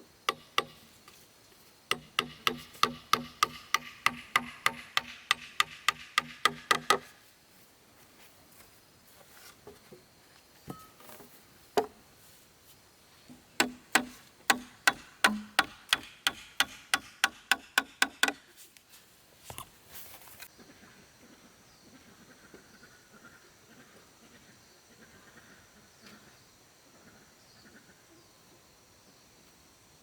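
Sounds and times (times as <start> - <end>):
hammer driving nails into wood: 0.3 - 0.8, 1.9 - 7.1, 13.6 - 18.5.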